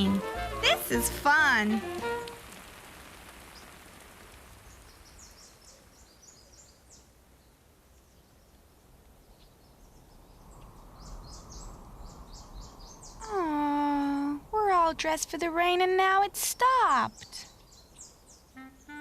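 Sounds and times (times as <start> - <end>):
rain patter: 0.0 - 18.5
birds chirping: 3.4 - 14.2, 16.6 - 19.0.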